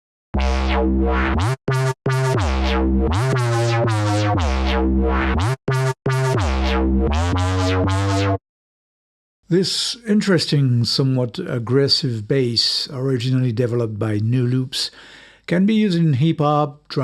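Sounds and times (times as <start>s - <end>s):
synth bass riff: 0.4s - 8.4s.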